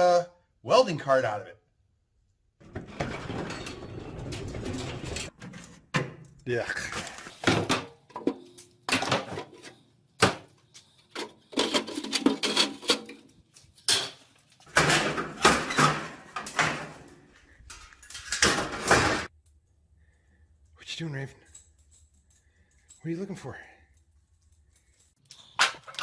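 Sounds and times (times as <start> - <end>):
metal grill parts clanking: 2.7 - 5.7, 11.2 - 19.3.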